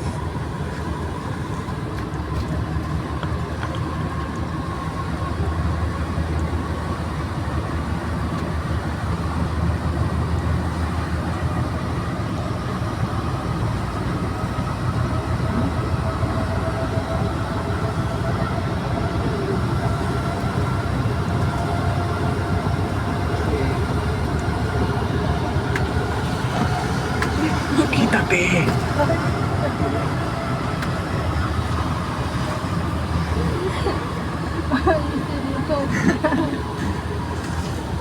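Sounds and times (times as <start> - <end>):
train rumble inside car: 0.0 - 38.0.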